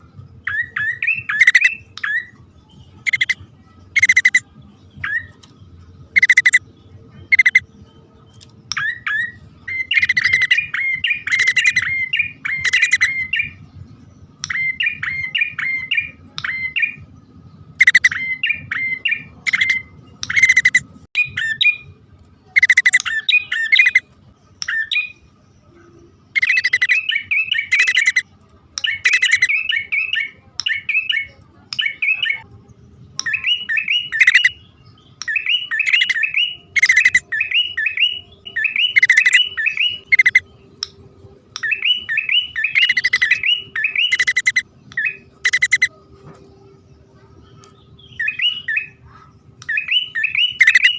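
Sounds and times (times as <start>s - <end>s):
bird scolding and chirping: 0.4s - 2.4s, 3.0s - 5.5s, 6.1s - 6.6s, 7.2s - 7.6s, 8.7s - 13.6s, 17.7s - 25.2s, 26.3s - 28.2s, 28.8s - 32.4s, 33.2s - 34.6s, 35.2s - 40.9s, 41.6s - 45.9s, 47.6s - 50.9s.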